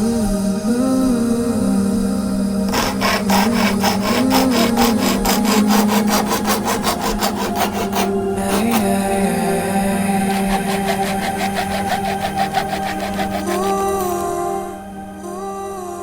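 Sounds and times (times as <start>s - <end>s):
hand chainsaw rasping through wood: 2.7s - 9.2s, 10.2s - 14.3s.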